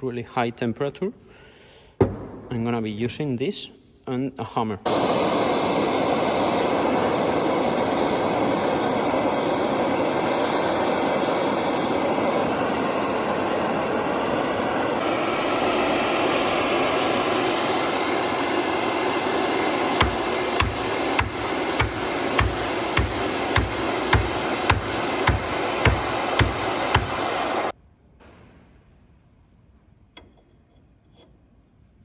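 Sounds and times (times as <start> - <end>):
gas torch burning: 4.9 - 27.8
hammer blows on metal: 19.9 - 27.7.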